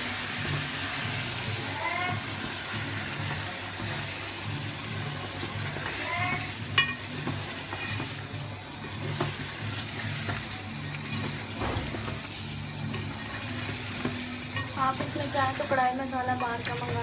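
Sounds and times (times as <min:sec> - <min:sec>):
food sizzling in a pot: 0:00.0 - 0:17.0
spatula stirring and scraping: 0:00.0 - 0:17.0
spatula clacking on pot: 0:05.7 - 0:08.2.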